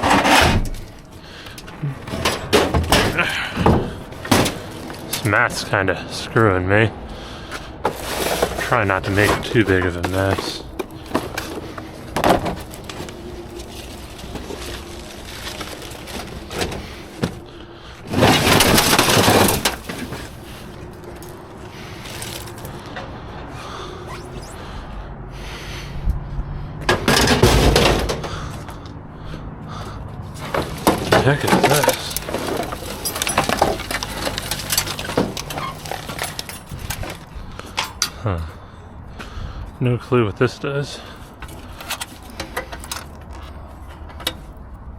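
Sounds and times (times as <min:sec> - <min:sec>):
scrap objects clinking and knocking: 0:07.8 - 0:22.9, 0:30.3 - 0:38.2
loud metal clatter: 0:18.1 - 0:20.4, 0:26.9 - 0:28.4, 0:30.4 - 0:37.2
scrap knocking in dumpster: 0:26.9 - 0:28.4.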